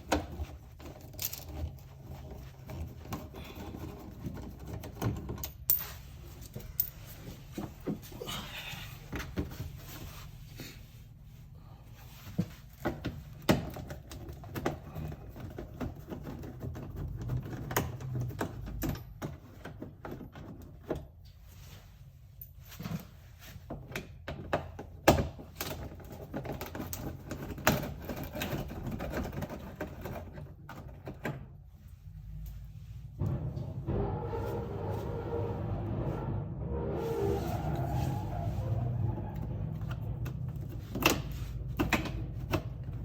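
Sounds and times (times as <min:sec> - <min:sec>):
steady low rumble: 0:32.0 - 0:43.0.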